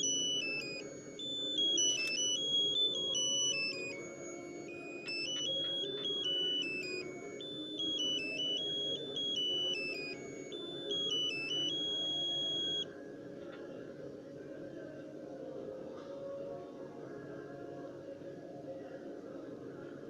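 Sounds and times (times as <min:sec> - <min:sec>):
piezo buzzer beeping melody: 0:00.0 - 0:12.9.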